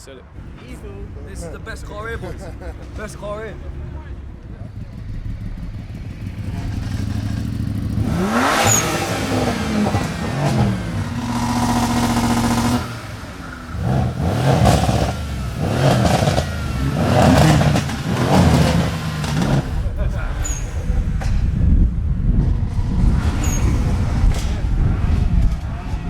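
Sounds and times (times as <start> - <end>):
car engine revving: 0.3 - 26.0.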